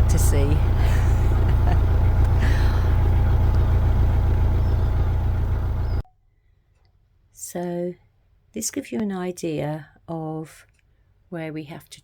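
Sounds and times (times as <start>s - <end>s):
diesel engine rumbling: 0.0s - 6.0s.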